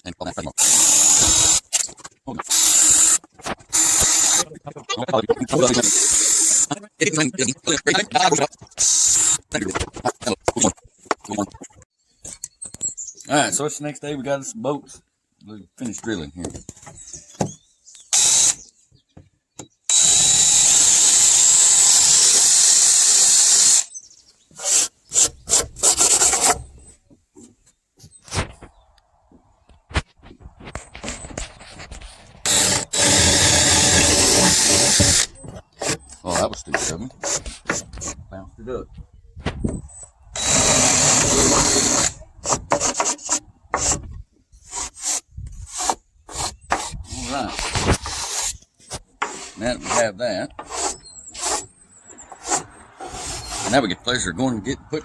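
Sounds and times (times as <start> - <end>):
power tool whining into wood: 0.6 - 1.9, 2.5 - 4.4, 18.1 - 18.6, 19.9 - 23.9, 24.6 - 26.9, 32.4 - 38.1, 39.9 - 44.0, 50.6 - 53.8
scraping along wooden board: 24.5 - 27.6, 30.7 - 38.2, 39.7 - 54.0.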